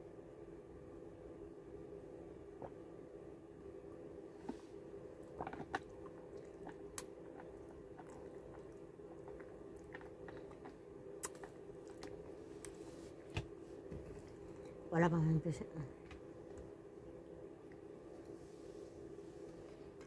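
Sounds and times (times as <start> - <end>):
steady background hum: 0.0 - 20.0
person chewing food: 4.4 - 12.8
mouth clicks and smacks: 9.3 - 12.2.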